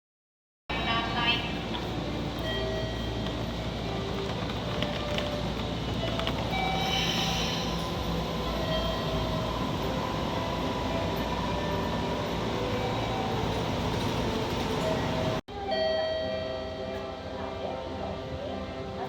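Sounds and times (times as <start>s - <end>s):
train rail rumble: 0.8s - 15.4s.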